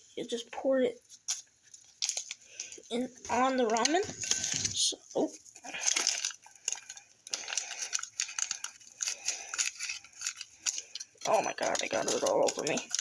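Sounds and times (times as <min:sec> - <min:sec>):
seasoning packet crinkling: 0:05.7 - 0:13.0.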